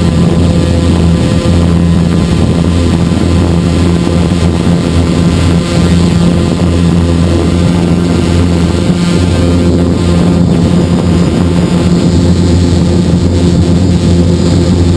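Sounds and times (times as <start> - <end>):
drone motors and propellers running: 0.0 - 14.9.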